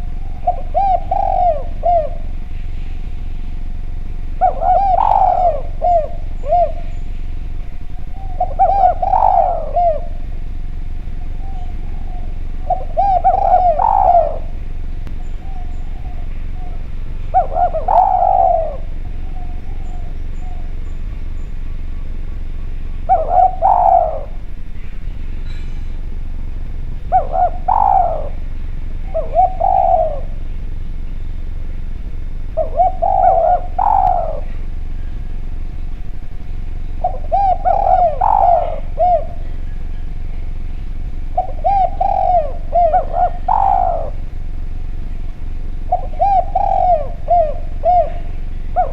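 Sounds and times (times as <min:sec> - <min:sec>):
dove cooing: 0:00.0 - 0:48.9
steady low hum: 0:00.0 - 0:48.9.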